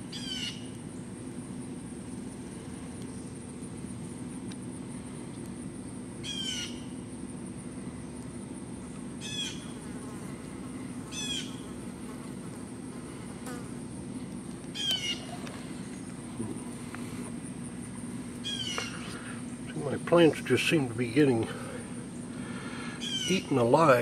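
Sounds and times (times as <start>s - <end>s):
steady low hum: 0.0s - 24.0s
bird squawking: 0.1s - 0.6s, 11.1s - 11.6s, 14.8s - 15.8s, 18.4s - 19.1s, 23.0s - 23.5s.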